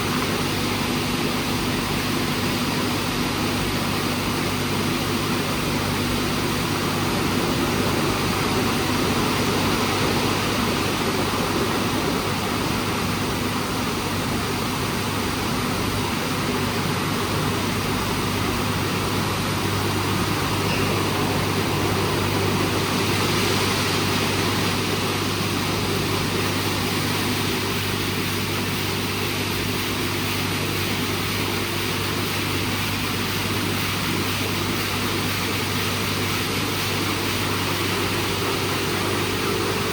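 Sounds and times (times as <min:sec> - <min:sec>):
car wash machine and spray: 0:00.0 - 0:39.9
low hum: 0:18.0 - 0:26.3.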